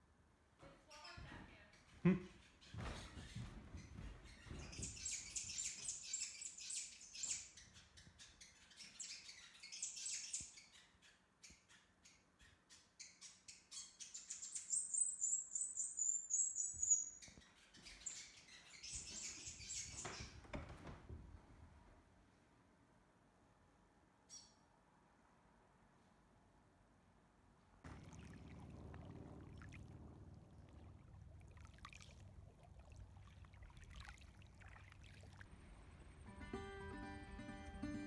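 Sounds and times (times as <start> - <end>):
small birds chirping: 0.9 - 20.9, 24.2 - 24.7.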